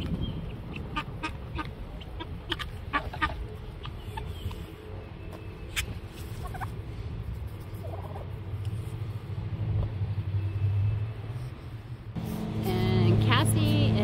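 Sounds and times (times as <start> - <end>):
steady low rumble: 0.0 - 10.2
turkey gobbling: 0.5 - 4.3, 6.4 - 6.7, 7.8 - 8.2.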